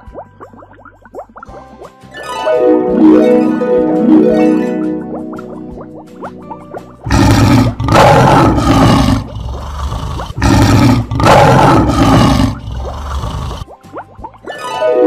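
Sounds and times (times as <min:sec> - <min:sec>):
lion roaring: 0:07.1 - 0:13.6.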